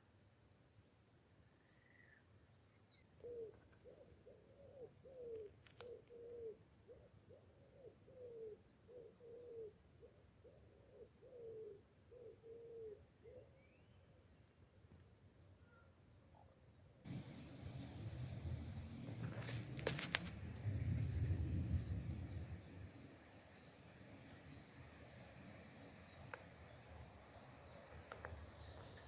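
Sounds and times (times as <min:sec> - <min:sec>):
bird chirping: 0:01.6 - 0:09.7, 0:22.2 - 0:25.0.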